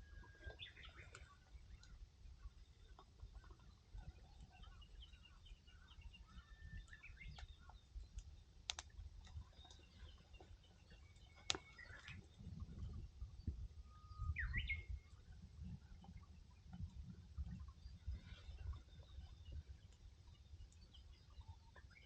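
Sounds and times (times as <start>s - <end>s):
faint birds chirping: 0.0s - 22.0s
fire popping: 8.1s - 10.0s, 11.4s - 12.3s.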